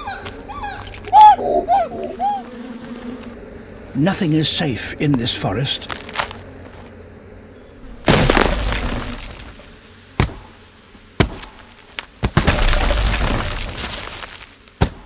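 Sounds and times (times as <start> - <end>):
wood cracking crash: 8.0 - 10.4, 11.2 - 15.0.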